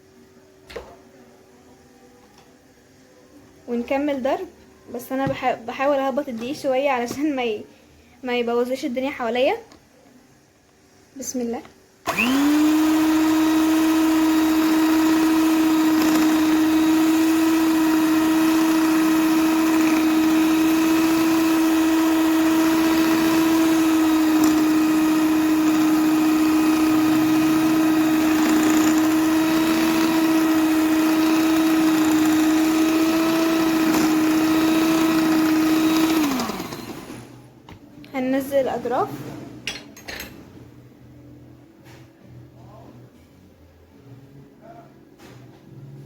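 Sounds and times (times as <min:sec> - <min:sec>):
electric mixer motor running: 0:12.1 - 0:37.4.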